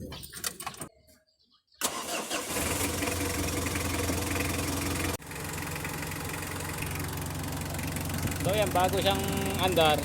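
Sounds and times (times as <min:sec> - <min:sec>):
diesel engine idling: 0:01.8 - 0:10.0.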